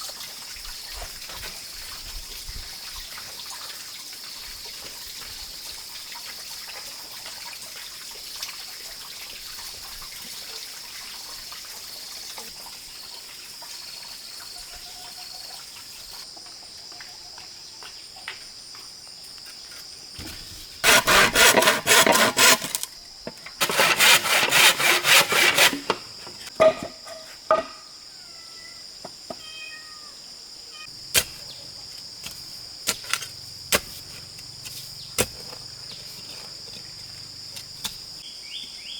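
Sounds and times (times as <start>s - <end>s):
insects droning: 0.0s - 38.9s
loud fast rasping bursts: 20.8s - 22.8s, 23.6s - 25.9s.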